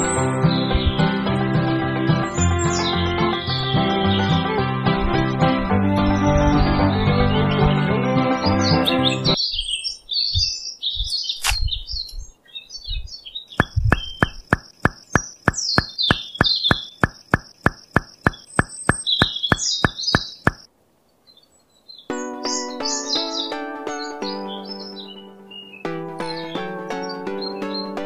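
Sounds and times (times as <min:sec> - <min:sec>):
music: 0:00.0 - 0:09.4, 0:22.1 - 0:28.0
birds chirping: 0:00.0 - 0:28.0
regular clicks: 0:13.6 - 0:20.7
soft low thumps: 0:13.6 - 0:20.7.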